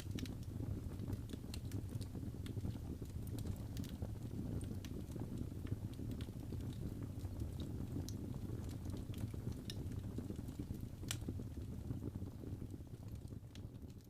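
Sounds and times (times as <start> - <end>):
fire crackling in fireplace: 0.0 - 14.0.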